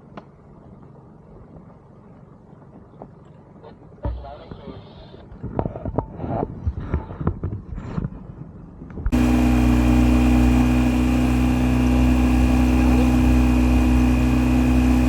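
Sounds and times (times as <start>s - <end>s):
outboard motor running: 9.1s - 15.0s.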